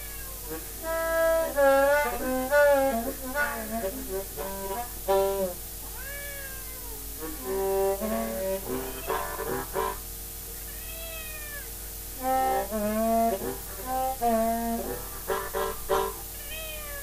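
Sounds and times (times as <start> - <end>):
cat meowing: 0.0 - 0.8, 5.9 - 7.4, 8.8 - 9.6, 10.6 - 11.8, 16.3 - 17.0
blues harmonica: 0.0 - 5.6, 7.2 - 10.1, 12.2 - 16.3.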